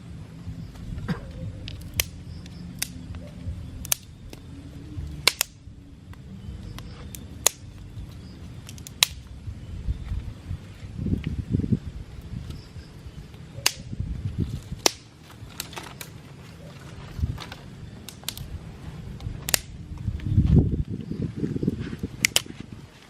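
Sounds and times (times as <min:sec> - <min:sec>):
steady low rumble: 0:00.0 - 0:23.0
sharp irregular cracks: 0:01.0 - 0:09.4, 0:13.6 - 0:16.3, 0:17.4 - 0:18.5, 0:19.2 - 0:19.8, 0:22.2 - 0:22.6.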